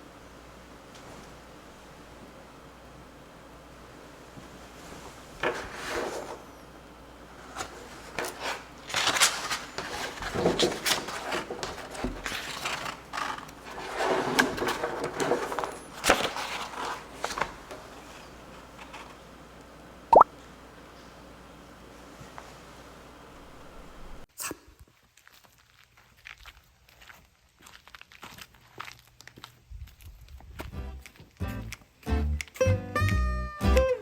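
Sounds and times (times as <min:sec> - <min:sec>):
objects scraping and rubbing: 0:04.6 - 0:19.2.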